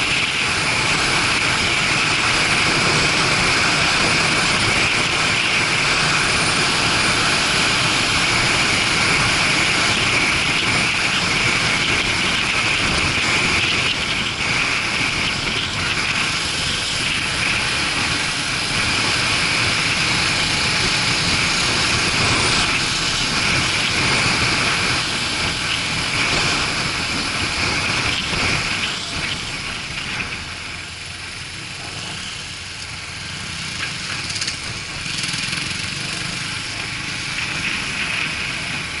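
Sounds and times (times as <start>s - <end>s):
wind rush over microphone: 0.0s - 30.8s
motorcycle engine running: 0.0s - 39.0s.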